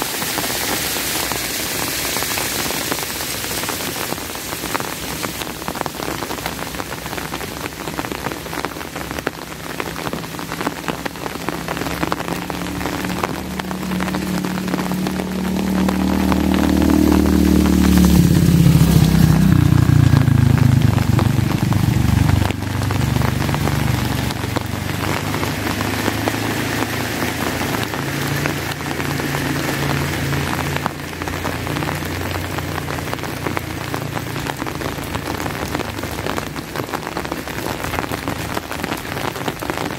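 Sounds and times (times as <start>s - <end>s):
rain pattering on an umbrella: 0.0s - 39.9s
low rumble: 8.4s - 36.5s.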